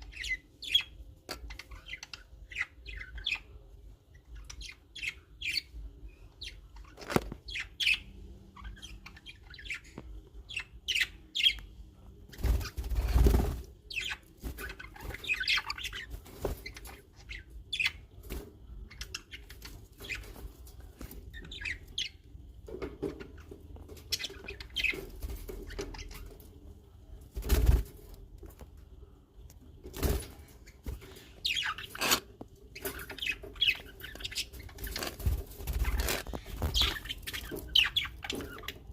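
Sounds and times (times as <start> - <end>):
small birds chirping: 0.0 - 38.9
wings fluttering: 12.3 - 17.0, 27.3 - 28.6, 34.6 - 37.8.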